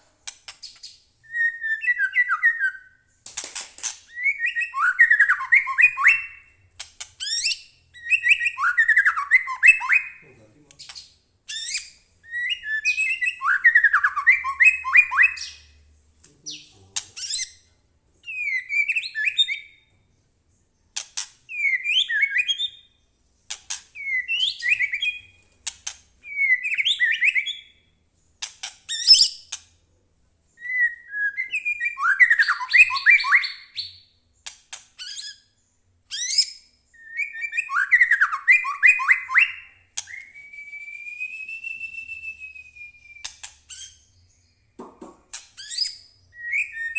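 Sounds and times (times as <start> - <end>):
songbird chattering and whistling: 4.1 - 6.5, 7.2 - 15.8, 30.6 - 34.1, 36.1 - 44.7, 45.3 - 46.9.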